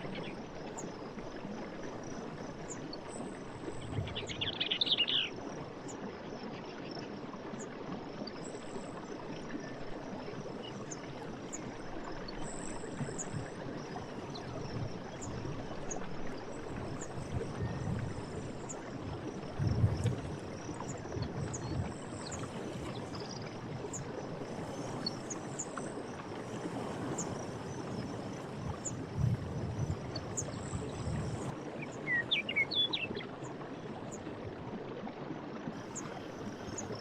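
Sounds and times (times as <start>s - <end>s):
insects chorus: 8.2s - 33.2s, 35.8s - 37.0s.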